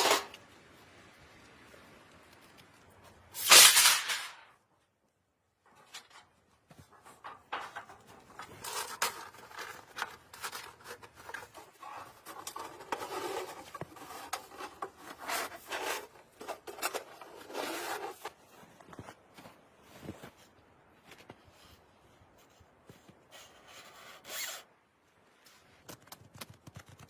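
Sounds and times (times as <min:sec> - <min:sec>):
rubbing and scraping: 0:00.0 - 0:00.4, 0:05.6 - 0:19.3.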